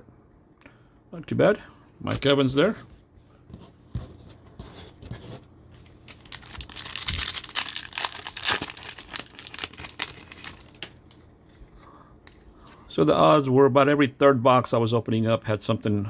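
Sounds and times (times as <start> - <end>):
plastic wrapper crinkling and tearing: 5.9 - 11.6.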